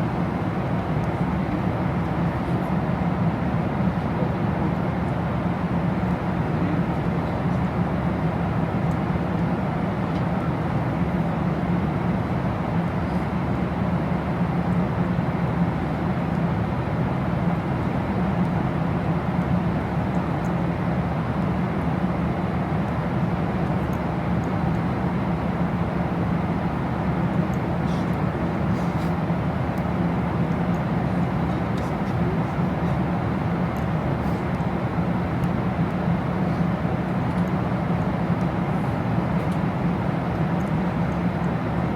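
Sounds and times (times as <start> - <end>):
jet cabin engine rush: 19.7 - 41.9.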